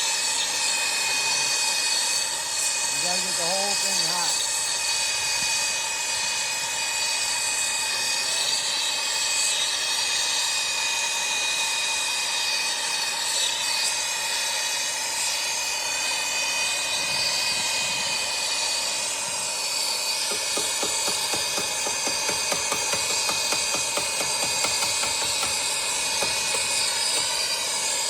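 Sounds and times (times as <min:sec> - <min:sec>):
torch flame hissing: 0:00.0 - 0:28.0.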